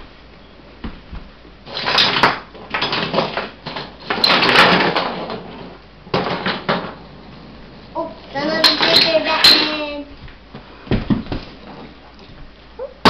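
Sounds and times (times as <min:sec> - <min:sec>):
toy trucks clattering: 0:01.7 - 0:06.9, 0:08.4 - 0:10.0.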